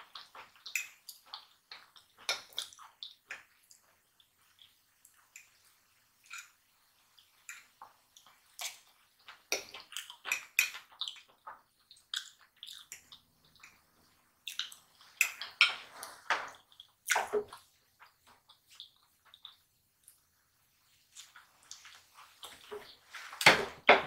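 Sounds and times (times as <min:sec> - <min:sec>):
wet mouth smacks while chewing: 0:11.9 - 0:13.0.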